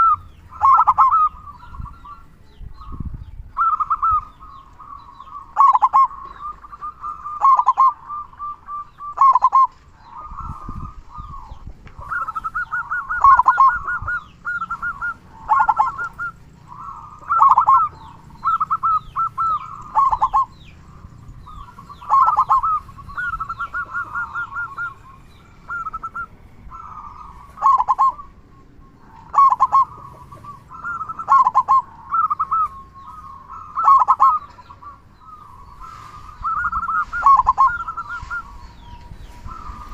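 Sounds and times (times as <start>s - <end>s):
dove trilled cooing: 0.0s - 39.9s.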